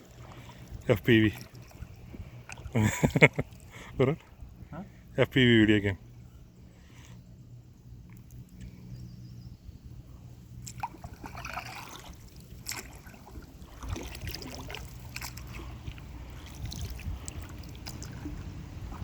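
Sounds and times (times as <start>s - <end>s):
paddle splashing in water: 0.0s - 2.8s, 10.6s - 19.0s
low steady rumble: 0.0s - 19.0s.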